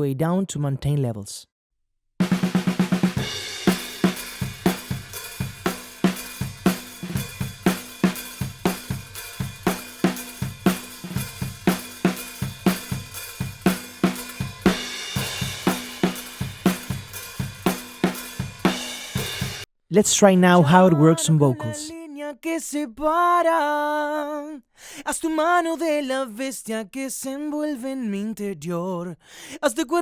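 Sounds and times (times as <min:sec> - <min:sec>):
distorted drum kit: 0:02.2 - 0:19.6.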